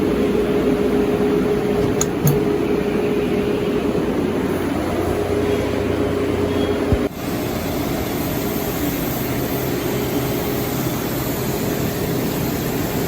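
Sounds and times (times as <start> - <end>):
short thump: 1.8 - 2.5.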